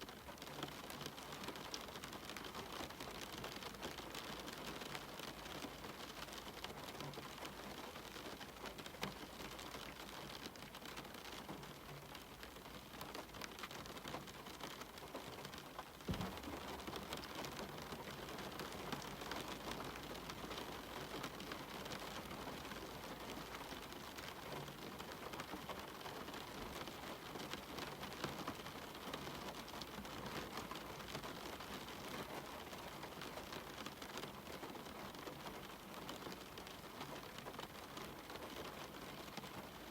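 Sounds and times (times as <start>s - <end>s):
rain pattering on a window: 0.0s - 39.9s
low thump: 16.1s - 16.5s.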